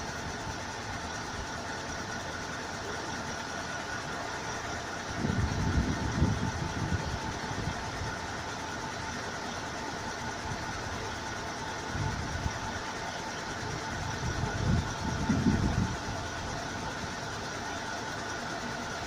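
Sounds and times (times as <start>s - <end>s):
aircraft engine whine: 0.0s - 19.0s.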